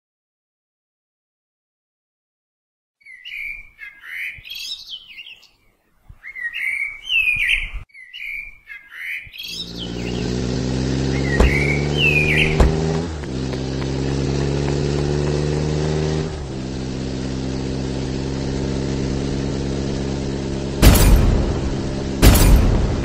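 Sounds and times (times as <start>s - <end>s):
songbird singing: 3.0s - 15.7s
vehicle engine running: 9.6s - 23.0s
sharp knocks: 11.2s - 16.1s, 20.8s - 23.0s.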